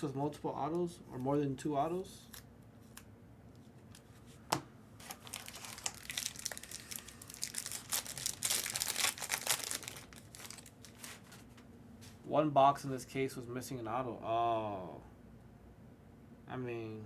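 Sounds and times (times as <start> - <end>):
wrapper tearing and crinkling: 5.0 - 11.5.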